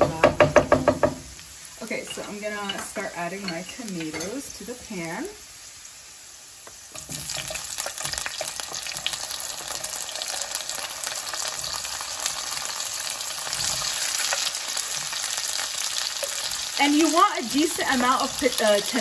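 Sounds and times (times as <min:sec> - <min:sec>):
tomatoes sizzling in oil: 0:00.0 - 0:19.0.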